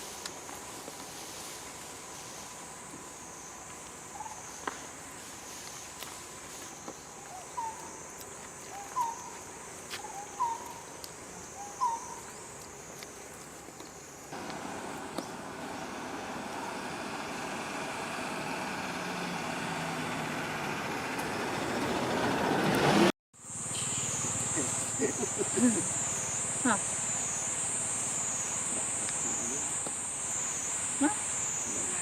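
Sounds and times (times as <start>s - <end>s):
high insect drone: 0.0s - 19.8s, 23.4s - 32.0s
bird calls: 4.1s - 4.8s, 6.7s - 12.6s
approaching vehicle rushing: 14.6s - 23.1s.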